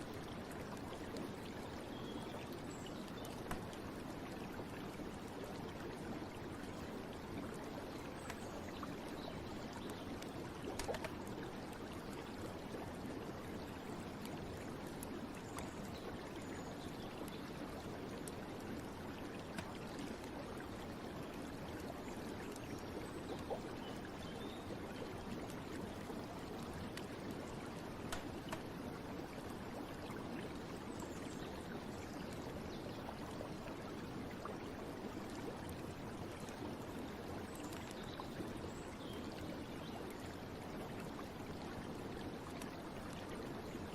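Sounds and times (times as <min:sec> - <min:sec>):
faint small clicks and drips: 0:00.0 - 0:43.9
stream running and trickling: 0:00.0 - 0:43.9.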